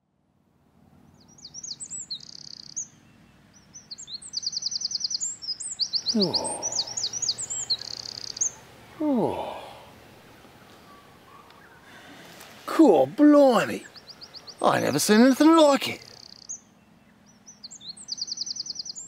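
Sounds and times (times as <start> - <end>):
songbirds chirping and trilling: 0.6 - 19.0
person vocal ooh: 6.1 - 7.2, 9.0 - 10.0.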